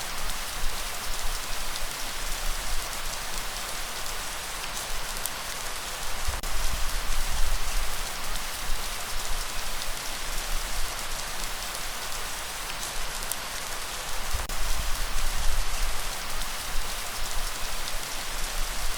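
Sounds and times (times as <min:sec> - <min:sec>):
heavy rain hissing: 0:00.0 - 0:18.9.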